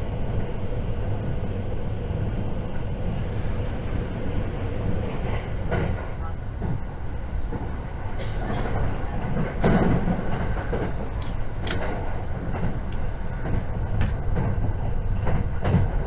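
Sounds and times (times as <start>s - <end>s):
train running gear rumble: 0.0s - 16.0s
wheels clacking over rail joints: 0.4s - 16.0s.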